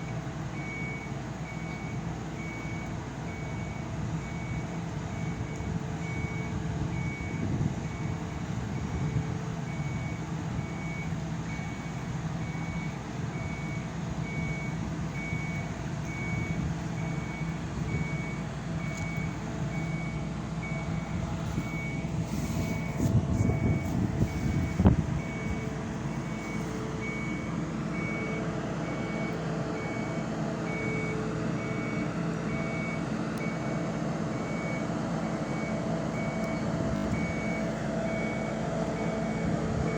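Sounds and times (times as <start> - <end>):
heavy vehicle engine running: 0.0 - 39.9
warning beeper beeping: 13.4 - 33.7.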